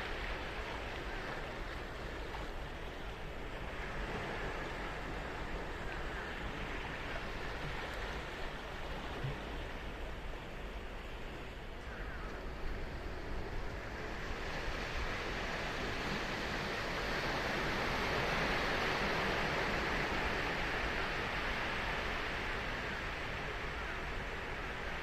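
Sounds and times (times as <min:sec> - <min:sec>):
ocean surf breaking on beach: 0:12.4 - 0:25.0.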